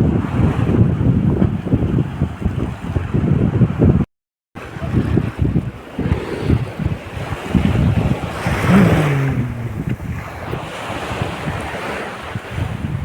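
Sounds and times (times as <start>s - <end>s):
wind buffeting microphone: 0.0s - 13.0s
sea waves washing: 4.6s - 13.0s.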